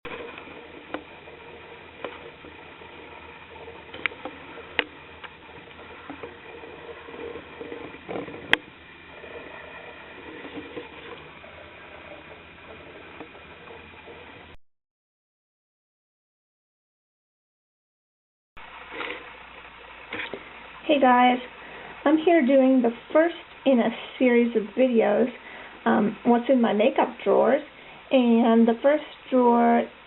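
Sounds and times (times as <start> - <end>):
faint steady hum: 0.0 - 14.6, 18.6 - 30.0
sharp clicks and knocks: 1.9 - 8.8.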